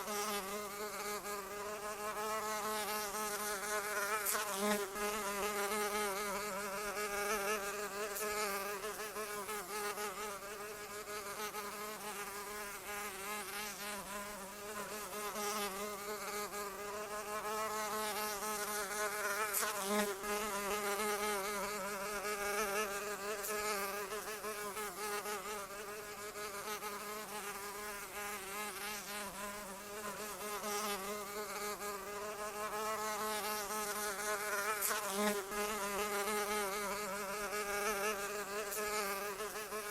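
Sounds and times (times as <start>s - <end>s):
insect wings buzzing: 0.0s - 39.9s.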